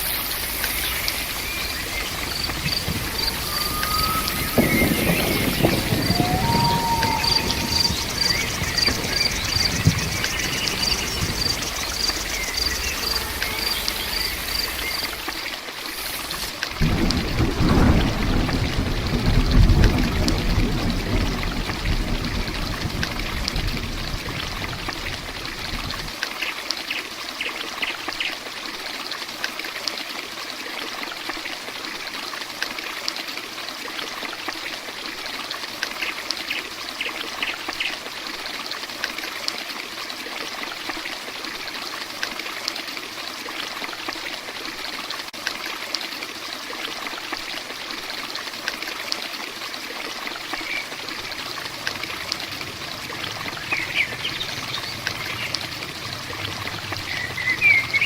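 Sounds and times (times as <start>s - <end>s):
heavy rain: 0.0s - 26.3s, 47.1s - 58.0s
low thunder rumble: 0.1s - 15.4s, 16.8s - 26.1s, 50.6s - 58.0s.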